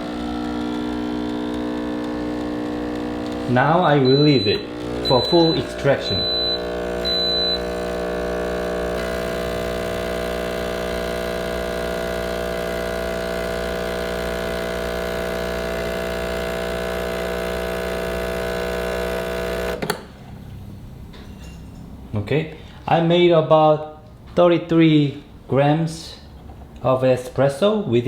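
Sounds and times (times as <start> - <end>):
espresso machine pump humming: 0.0 - 20.0
espresso machine click: 0.1 - 3.5.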